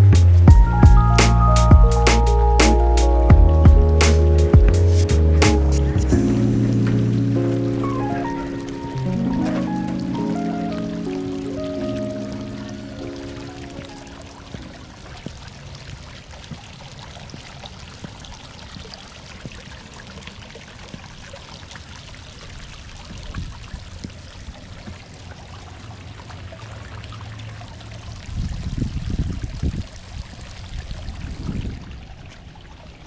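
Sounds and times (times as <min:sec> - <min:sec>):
low thumps: 0:00.0 - 0:08.2
water trickling: 0:00.0 - 0:33.0.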